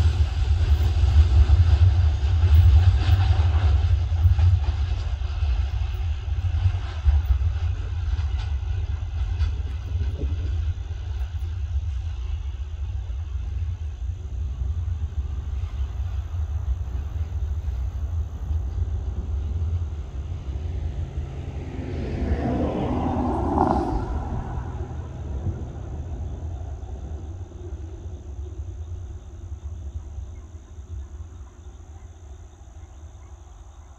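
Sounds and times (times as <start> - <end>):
freight train rumbling: 0.0 - 33.9.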